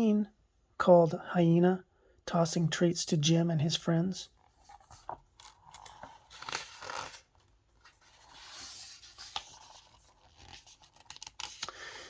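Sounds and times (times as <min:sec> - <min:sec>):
book pages rustling: 0:04.3 - 0:11.8.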